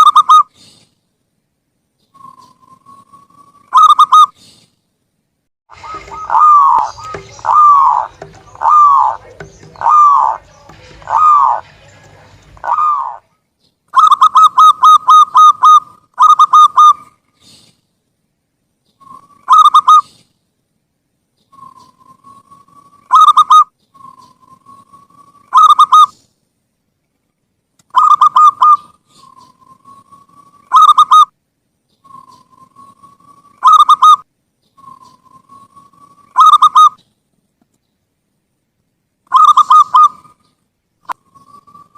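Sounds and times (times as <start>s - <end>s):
dove cooing: 3.7s - 4.3s, 5.7s - 13.3s, 14.0s - 17.1s, 19.0s - 20.1s, 21.6s - 26.2s, 28.0s - 31.3s, 32.1s - 34.2s, 34.8s - 37.0s, 39.3s - 40.4s.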